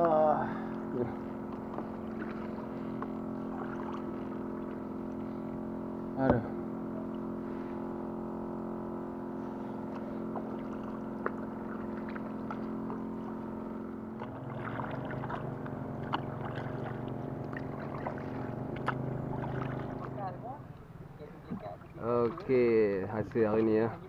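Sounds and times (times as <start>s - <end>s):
motorboat engine running: 0.0s - 24.0s.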